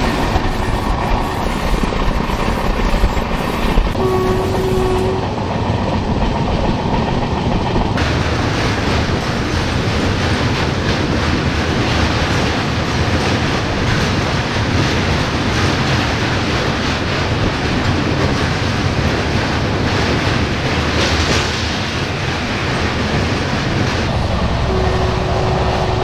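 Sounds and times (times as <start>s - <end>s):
train wheels rumbling on rails: 0.0s - 26.0s
train horn blast: 4.0s - 5.4s, 24.5s - 26.0s.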